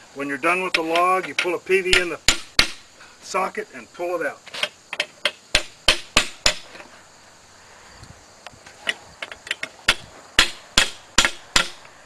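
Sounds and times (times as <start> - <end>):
hammer striking metal into log: 0.7 - 2.8, 5.2 - 6.7, 9.6 - 11.8.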